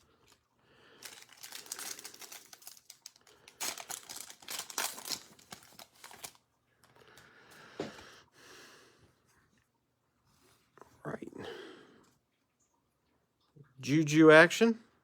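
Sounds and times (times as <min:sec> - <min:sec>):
wrapper crinkling and tearing: 0:00.0 - 0:06.4.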